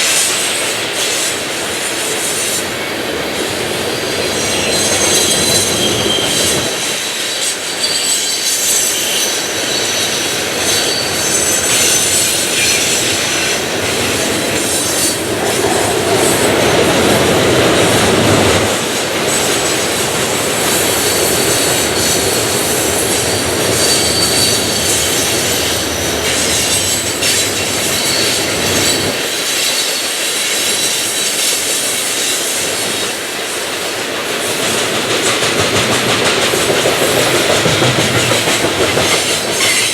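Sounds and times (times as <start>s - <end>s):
train wheels rolling on rails: 0.0s - 39.9s
wheel squeal: 3.8s - 16.8s, 19.3s - 33.2s, 36.9s - 39.9s
clacking over rail joints: 33.7s - 39.9s.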